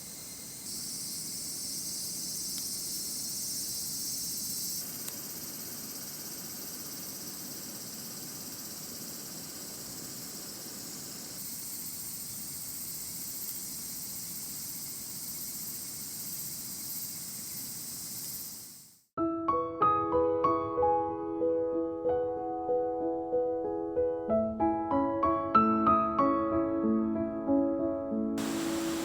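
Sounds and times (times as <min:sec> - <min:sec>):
crickets chirring: 0:00.0 - 0:19.1, 0:28.4 - 0:29.0
piano music: 0:19.2 - 0:29.0.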